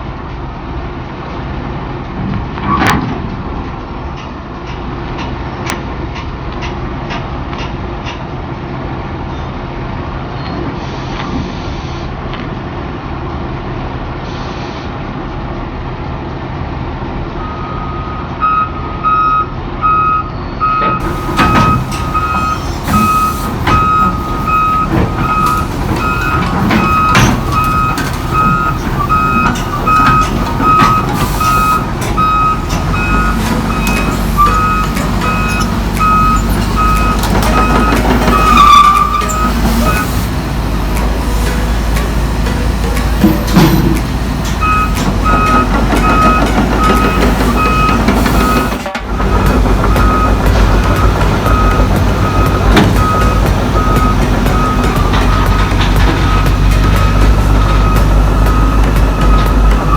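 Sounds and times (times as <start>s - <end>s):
heavy diesel machinery running: 0.0s - 59.9s
repeating reversing beep alarm: 17.4s - 40.1s, 44.6s - 59.9s
metal clanks and knocks: 21.0s - 59.9s.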